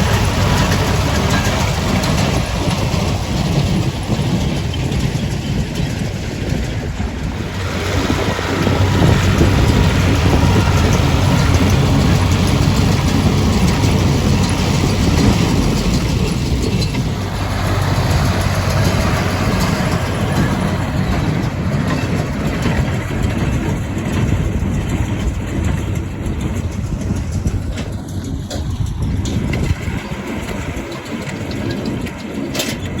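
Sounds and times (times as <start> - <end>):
haymaking machinery working: 0.0 - 33.0
tractor diesel engine running: 0.0 - 33.0.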